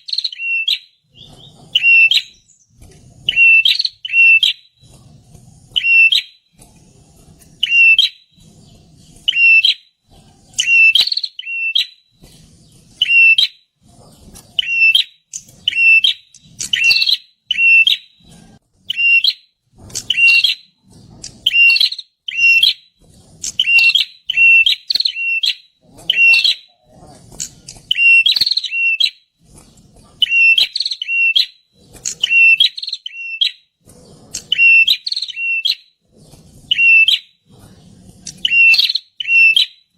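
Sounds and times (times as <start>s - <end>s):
bird calling sharp notes: 0.0s - 2.5s, 3.3s - 4.7s, 5.8s - 6.3s, 14.6s - 18.0s, 32.1s - 33.6s, 34.4s - 35.8s, 36.7s - 37.2s, 38.4s - 39.7s.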